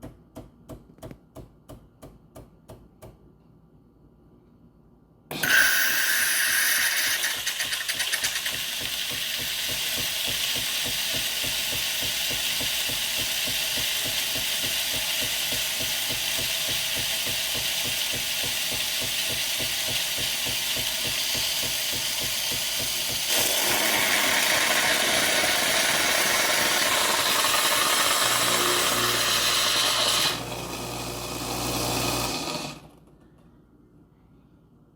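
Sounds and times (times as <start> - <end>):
espresso machine whirring: 5.3 - 33.0.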